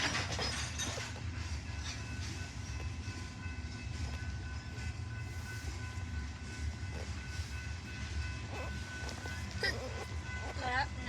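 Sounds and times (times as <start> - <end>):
freight train rumbling: 0.0 - 11.0.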